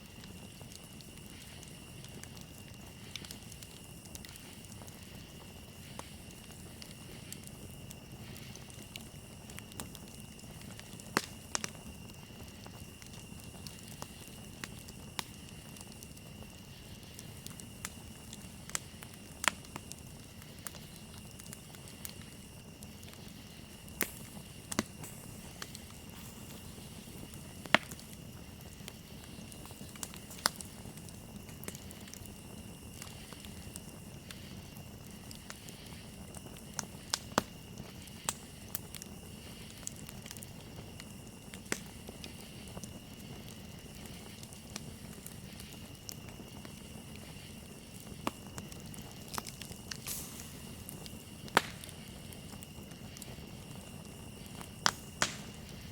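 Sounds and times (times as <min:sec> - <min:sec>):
campfire crackling and popping: 0:00.0 - 0:55.9
crickets chirping: 0:00.0 - 0:55.9.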